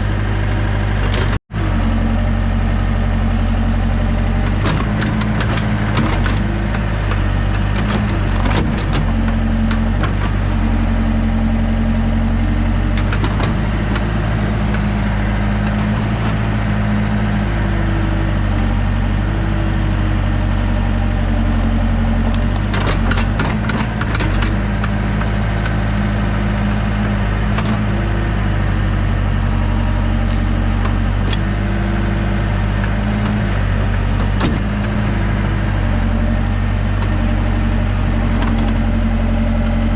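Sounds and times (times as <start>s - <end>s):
diesel engine running: 0.0s - 39.9s
sharp cracks and knocks: 4.5s - 10.4s, 22.3s - 25.8s, 34.2s - 35.0s.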